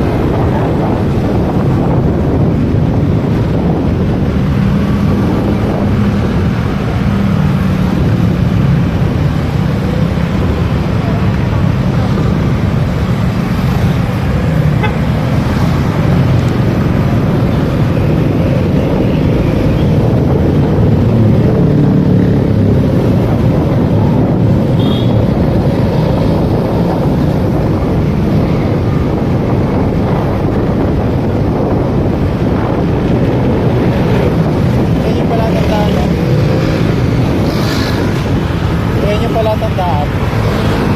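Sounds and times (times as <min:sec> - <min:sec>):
motorcycle engine and road rumble: 0:00.0 - 0:40.9
horn toot: 0:24.7 - 0:25.2.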